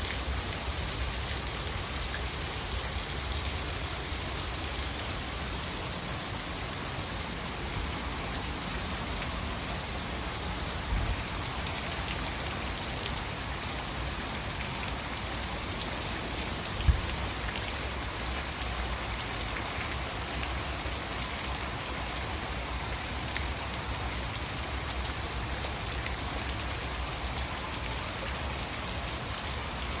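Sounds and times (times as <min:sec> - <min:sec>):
heavy rain hitting surfaces: 0:00.0 - 0:30.0.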